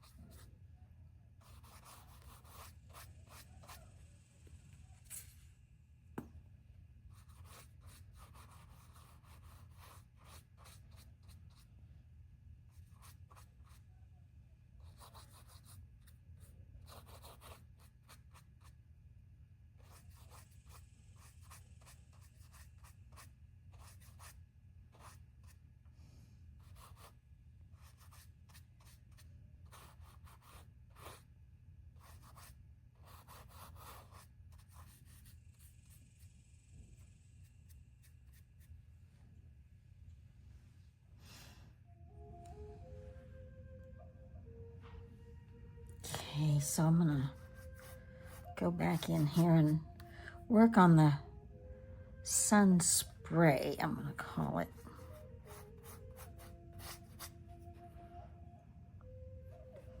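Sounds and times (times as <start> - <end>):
painting tool rubbing on surface: 46.6 - 49.8.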